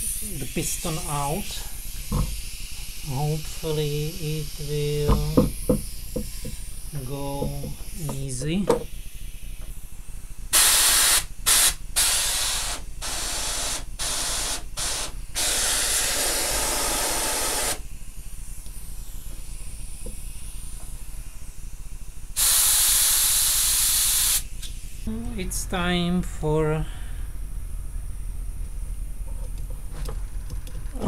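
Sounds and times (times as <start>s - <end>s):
compressed air blasts hissing: 0.0s - 9.6s, 10.5s - 17.9s, 22.3s - 25.1s.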